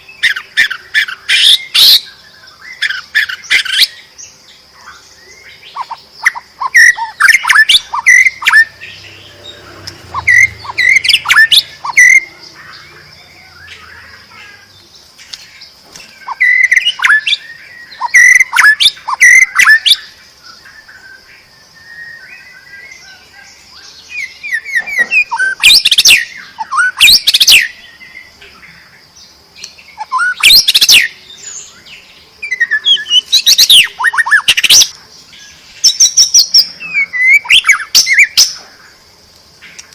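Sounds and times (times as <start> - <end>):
bird singing whistles: 5.2 - 14.2, 16.2 - 23.2, 24.0 - 28.1, 29.9 - 31.8, 32.4 - 34.9, 35.8 - 38.6.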